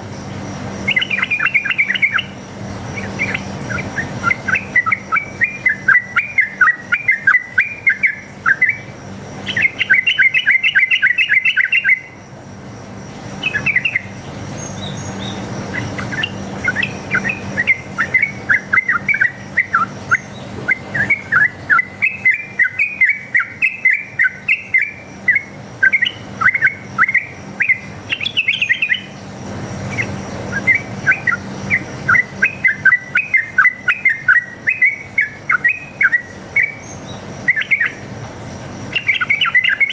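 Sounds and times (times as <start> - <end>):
bulbul singing rapid chirps: 0.0 - 39.9.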